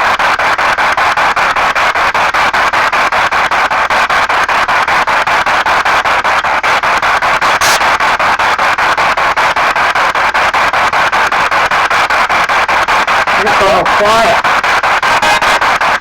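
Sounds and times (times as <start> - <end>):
chopped radio static: 7.2 - 8.2, 13.1 - 16.0
sharp crackle: 7.4 - 8.0.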